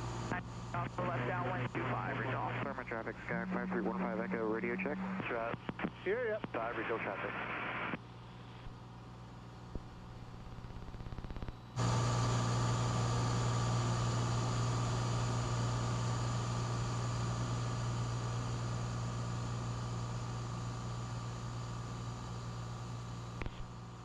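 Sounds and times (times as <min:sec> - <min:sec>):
aircraft engine drone: 0:00.1 - 0:05.5, 0:10.2 - 0:20.0.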